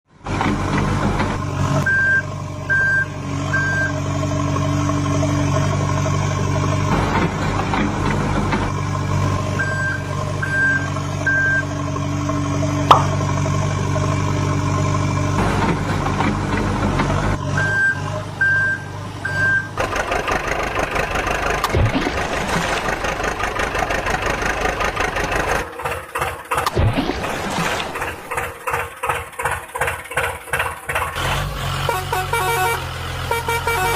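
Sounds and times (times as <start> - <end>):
heavy vehicle engine running: 0.1 - 33.9
reversing alarm beeps: 1.9 - 4.0, 9.6 - 11.7, 17.6 - 19.8
mechanical clatter and rattle: 19.8 - 26.9, 27.9 - 31.5.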